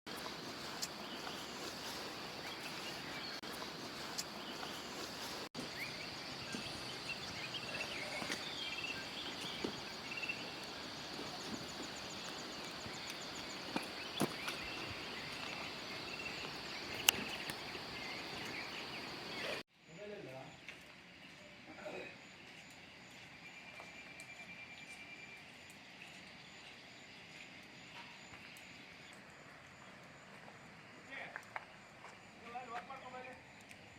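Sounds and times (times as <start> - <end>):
insect drone: 0.1 - 33.9
bird chirps: 0.6 - 19.6.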